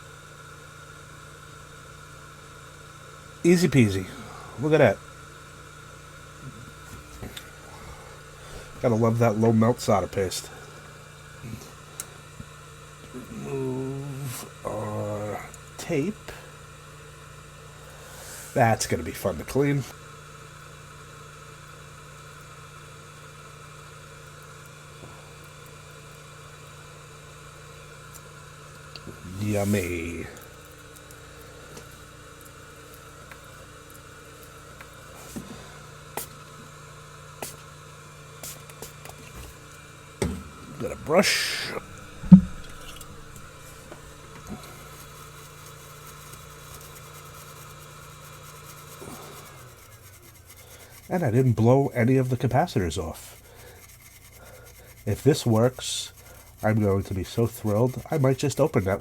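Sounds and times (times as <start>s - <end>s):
workbench equipment humming: 0.0s - 51.2s
sharp thump: 40.2s - 40.7s, 41.8s - 44.3s.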